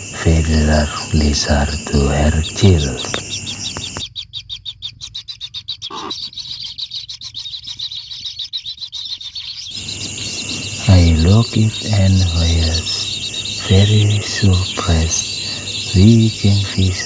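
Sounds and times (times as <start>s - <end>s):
high insect trill: 0.0s - 4.0s, 9.7s - 17.0s
chicks chirping: 0.0s - 17.0s.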